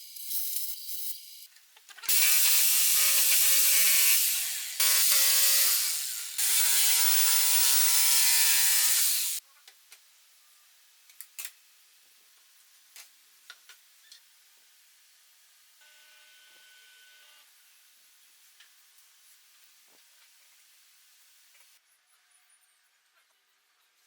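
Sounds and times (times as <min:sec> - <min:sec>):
power tool motor bursts: 0:02.1 - 0:09.4.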